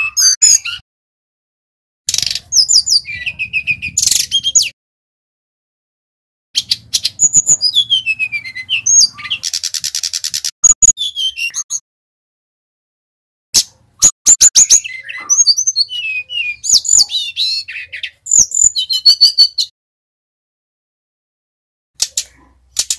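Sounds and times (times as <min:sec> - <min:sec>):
bird singing high whistles: 0:00.0 - 0:00.8, 0:02.1 - 0:04.8, 0:06.6 - 0:11.8, 0:14.0 - 0:19.7.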